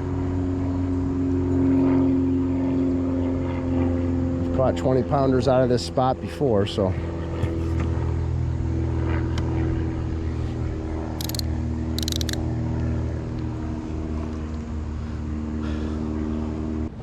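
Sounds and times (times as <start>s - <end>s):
engine running steadily: 0.0s - 17.0s
short high rattles: 11.2s - 12.4s.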